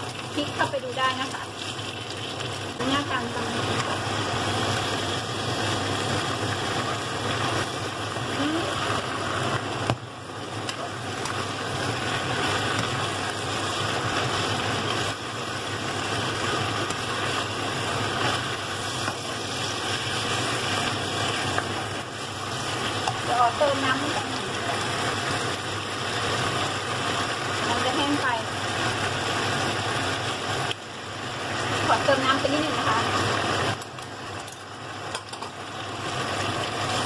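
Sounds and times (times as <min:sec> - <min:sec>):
food sizzling in a frying pan: 0:00.0 - 0:37.0.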